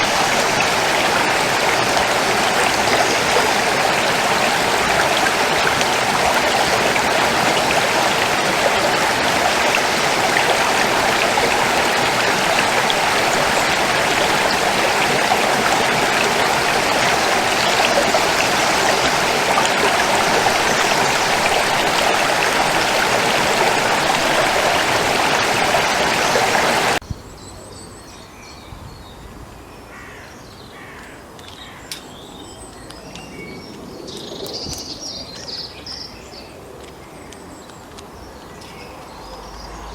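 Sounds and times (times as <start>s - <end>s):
stream water rushing: 0.0s - 27.0s.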